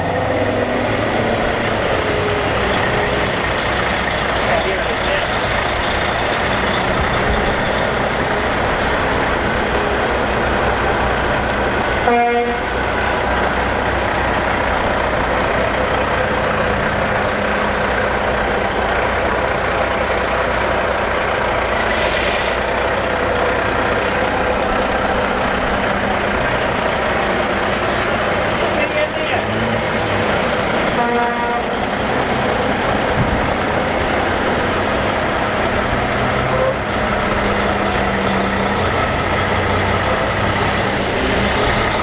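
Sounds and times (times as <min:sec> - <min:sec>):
heavy trucks driving past: 0:00.0 - 0:42.0
truck horn blast: 0:12.0 - 0:12.8, 0:30.9 - 0:31.9, 0:36.4 - 0:36.9
air hiss: 0:21.8 - 0:22.7.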